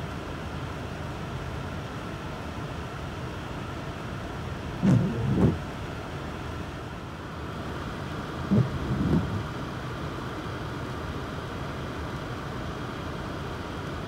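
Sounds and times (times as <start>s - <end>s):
steady rain: 0.0s - 14.0s
wind noise on microphone: 4.8s - 5.6s, 8.5s - 9.5s
short low bursts: 4.8s - 5.7s, 8.5s - 9.5s.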